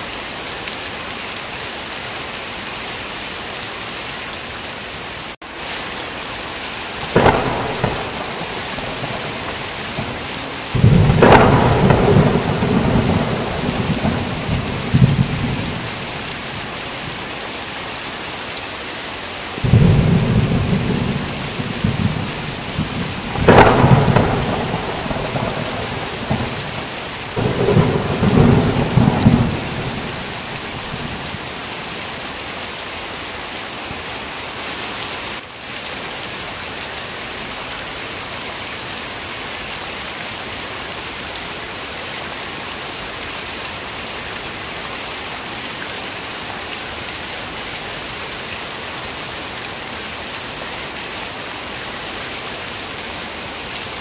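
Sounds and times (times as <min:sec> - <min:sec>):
heavy rain falling: 0:00.0 - 0:54.0
low rumble of thunder: 0:07.1 - 0:17.2, 0:19.6 - 0:31.4.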